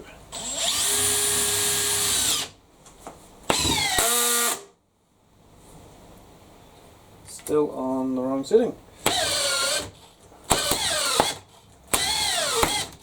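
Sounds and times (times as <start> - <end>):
hammer drill driving a screw: 0.4 - 2.5, 3.5 - 4.7, 9.0 - 13.0.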